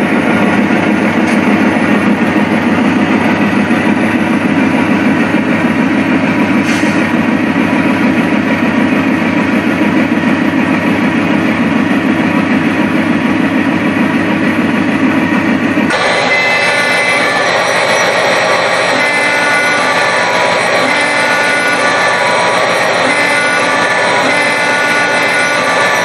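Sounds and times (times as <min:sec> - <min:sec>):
diesel locomotive engine running: 0:00.0 - 0:26.0.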